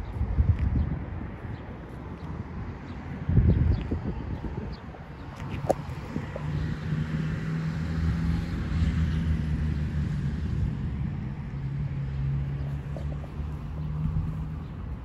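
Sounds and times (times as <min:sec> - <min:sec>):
vehicle engine humming: 0:04.2 - 0:15.0.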